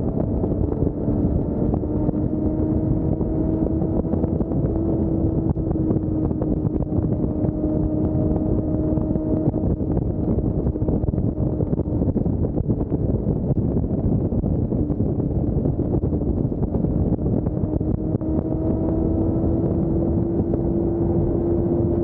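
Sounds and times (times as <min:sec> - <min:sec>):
motorcycle engine cruising: 0:00.0 - 0:22.0
wind rush on microphone: 0:00.0 - 0:22.0.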